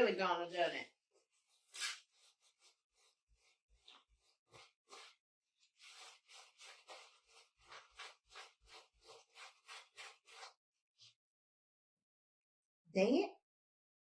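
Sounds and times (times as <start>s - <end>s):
napkin rubbing strokes: 0.5s - 11.1s.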